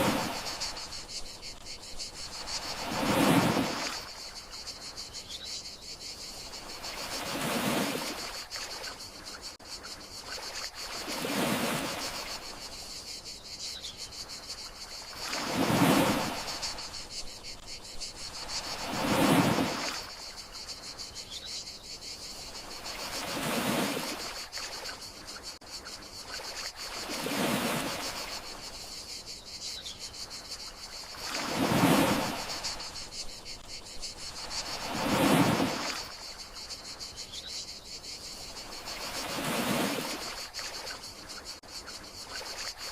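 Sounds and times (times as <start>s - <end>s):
sea waves washing in: 0.0s - 4.5s, 6.5s - 8.6s, 10.4s - 12.8s, 15.1s - 17.6s, 18.2s - 20.2s, 22.7s - 24.8s, 26.4s - 28.7s, 31.0s - 33.6s, 34.3s - 36.8s, 38.6s - 41.1s
crickets trilling: 0.0s - 42.9s.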